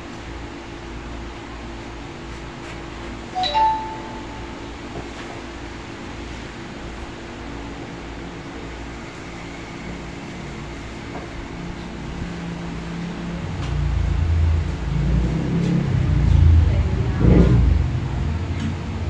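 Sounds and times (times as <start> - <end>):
machine hum: 4.0 - 19.0
low rumble: 13.3 - 19.0.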